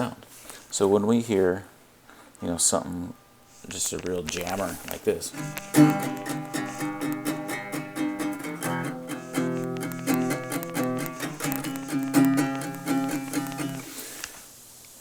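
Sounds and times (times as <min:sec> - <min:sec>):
guitar riff: 0:02.8 - 0:14.3.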